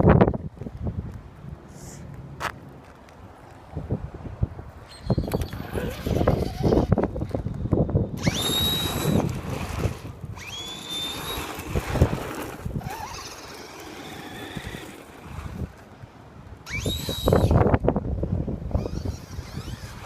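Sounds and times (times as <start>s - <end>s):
wind noise on microphone: 0.0s - 2.2s, 3.6s - 20.0s
rc car motor whining: 5.0s - 7.0s, 8.2s - 9.3s, 10.4s - 11.5s, 12.8s - 15.0s, 16.7s - 17.6s, 18.8s - 20.0s.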